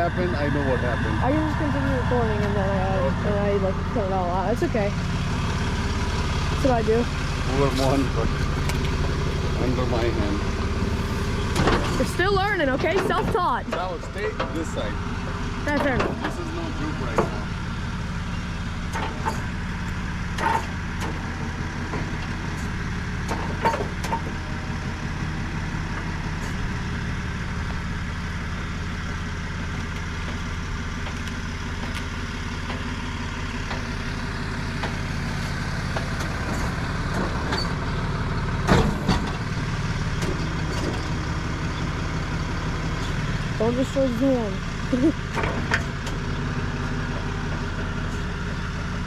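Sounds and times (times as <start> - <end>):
truck engine idling: 0.0 - 49.0.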